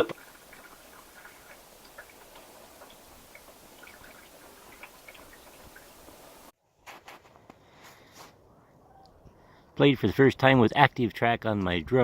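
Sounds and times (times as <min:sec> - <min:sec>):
low hiss: 0:00.0 - 0:06.5.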